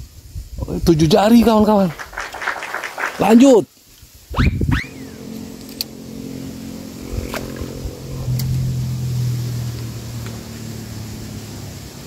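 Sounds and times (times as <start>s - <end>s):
small engine droning: 4.3s - 12.0s.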